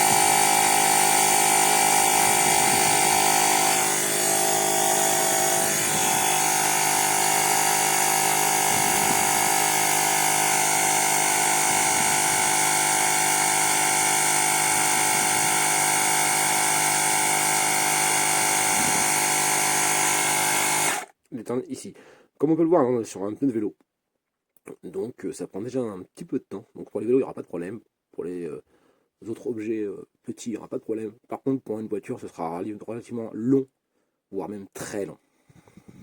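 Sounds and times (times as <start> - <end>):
electric tyre inflator buzzing: 0.0 - 21.1.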